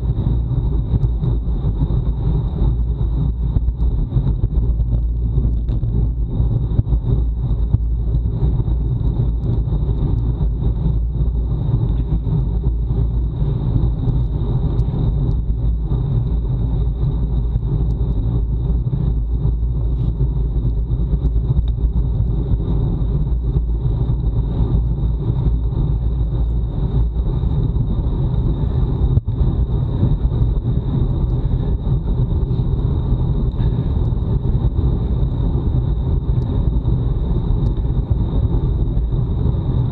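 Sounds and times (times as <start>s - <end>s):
tyre and road noise: 0.0s - 39.9s
wind buffeting microphone: 0.0s - 39.9s.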